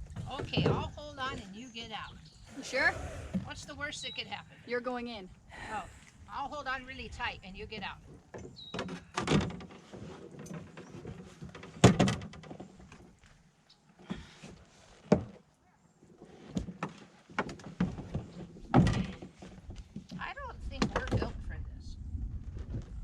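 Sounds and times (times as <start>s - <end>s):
canoe knocking against a dock: 0.0s - 2.1s, 10.5s - 13.0s, 16.6s - 21.3s
scraping and rustling: 8.0s - 13.4s.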